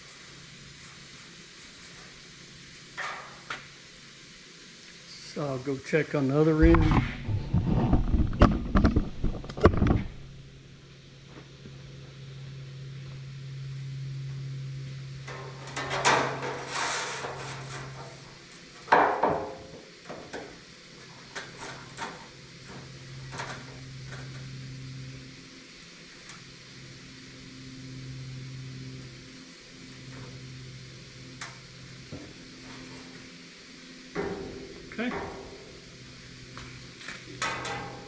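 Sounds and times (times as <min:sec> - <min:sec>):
steady low hum: 0:00.0 - 0:38.0
scraping and clatter: 0:06.6 - 0:10.2, 0:15.3 - 0:18.2, 0:37.0 - 0:38.0.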